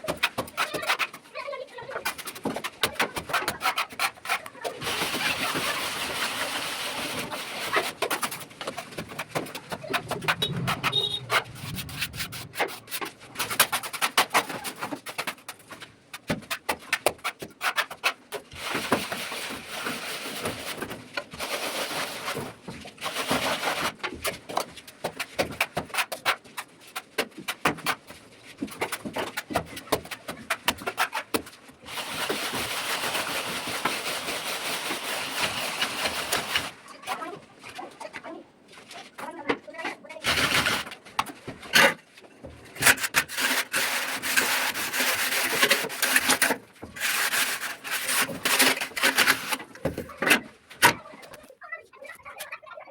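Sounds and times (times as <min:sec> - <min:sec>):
trowel scraping wet plaster: 0:00.0 - 0:01.3, 0:02.0 - 0:15.3, 0:16.5 - 0:22.4, 0:42.8 - 0:51.0.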